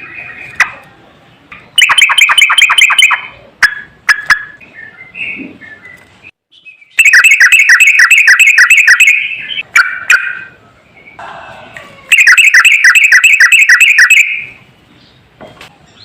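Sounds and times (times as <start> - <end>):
bird chirps and warbles: 0.0 - 11.2, 12.1 - 16.0
bird fast run of notes: 6.9 - 10.5, 12.1 - 14.6.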